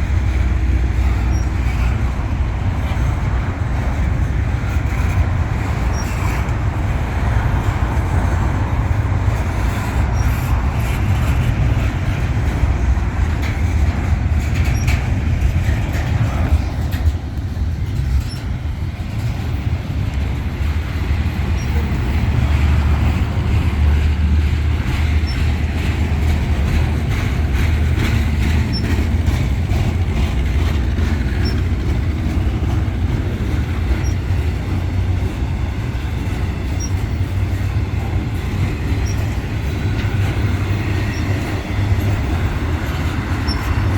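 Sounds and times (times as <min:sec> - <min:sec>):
freight train rumbling past: 0:00.0 - 0:43.9
faint wheel squeal: 0:01.0 - 0:02.1, 0:05.8 - 0:06.6, 0:14.5 - 0:17.1, 0:18.1 - 0:18.6, 0:21.5 - 0:22.2, 0:25.0 - 0:25.9, 0:27.1 - 0:31.7, 0:32.6 - 0:34.7, 0:36.6 - 0:37.2, 0:38.9 - 0:43.9.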